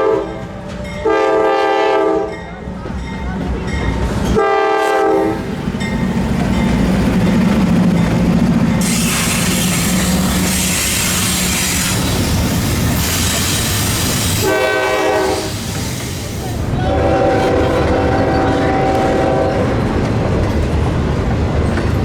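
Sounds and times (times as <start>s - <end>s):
train wheels on rails: 0.0s - 22.0s
locomotive air horn blasts: 1.0s - 2.3s, 4.4s - 5.5s, 14.2s - 15.7s, 16.7s - 19.7s.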